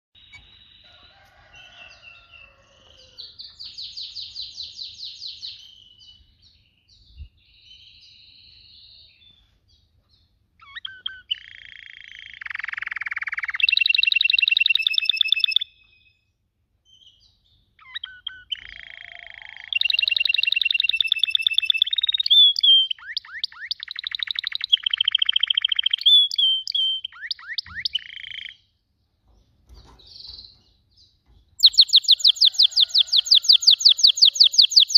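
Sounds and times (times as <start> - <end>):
canary singing high trills: 10.6 - 16.1, 16.9 - 28.7, 31.6 - 34.9.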